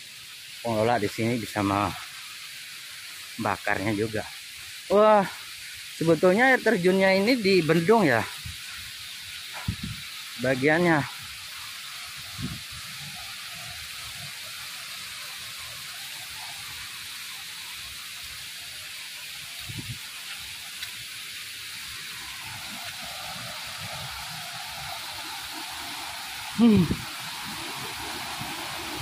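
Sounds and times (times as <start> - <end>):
waterfall rushing: 6.0 - 29.0.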